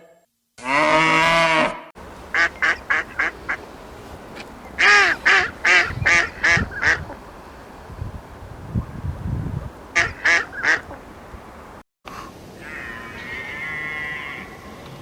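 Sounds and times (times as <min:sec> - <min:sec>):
duck quacking: 0:02.0 - 0:08.4, 0:09.6 - 0:11.6.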